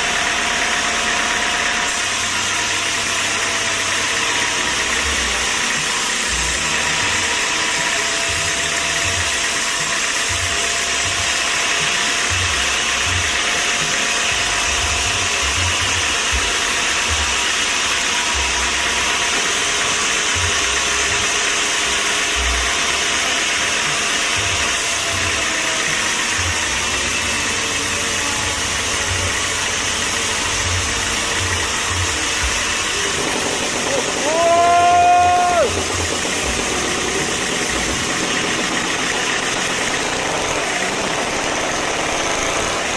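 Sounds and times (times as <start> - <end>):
machinery running loudly: 0.0 - 42.9
low rumbles: 30.2 - 42.9.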